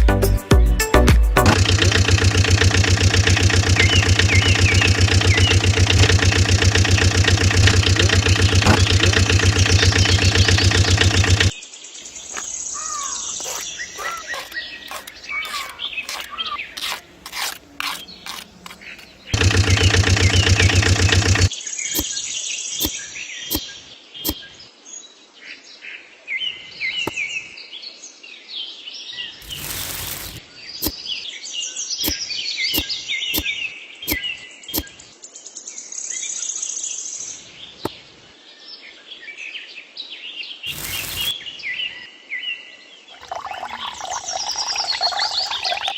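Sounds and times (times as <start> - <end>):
clicks: 1.4 - 11.5
loud bursts of noise: 1.5 - 11.5, 19.3 - 21.5, 40.7 - 41.4
loud rapidly pulsing buzz: 1.5 - 11.5, 19.3 - 21.5, 40.7 - 41.4
birds chirping and trilling: 2.0 - 24.6, 40.5 - 42.0, 43.2 - 45.9.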